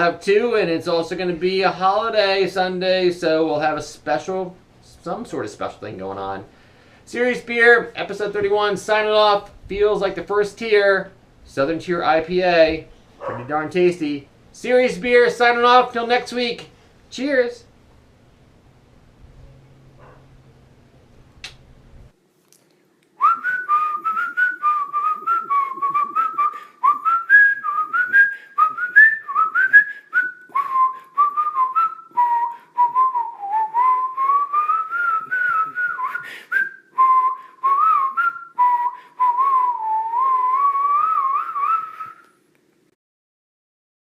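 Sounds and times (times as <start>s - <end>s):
person whistling a tune: 23.2s - 42.3s.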